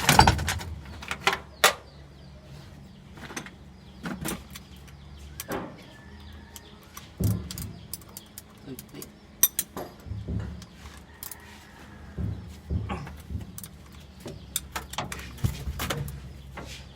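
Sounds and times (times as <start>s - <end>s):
sharp knocks and clanks: 0.0s - 1.9s, 7.0s - 16.9s
truck engine running: 12.1s - 16.9s.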